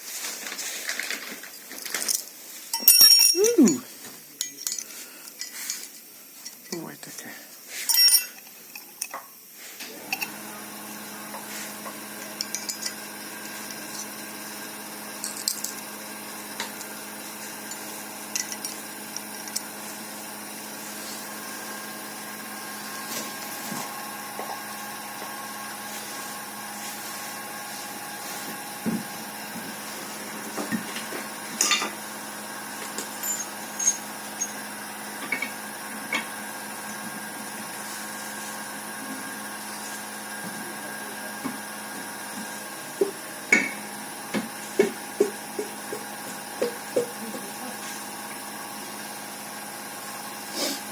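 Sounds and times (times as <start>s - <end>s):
metal parts clinking: 0.8s - 3.8s, 4.4s - 6.6s, 7.9s - 9.2s, 12.4s - 13.0s, 17.7s - 19.6s, 33.0s - 34.6s
small electric motor running: 9.9s - 50.8s.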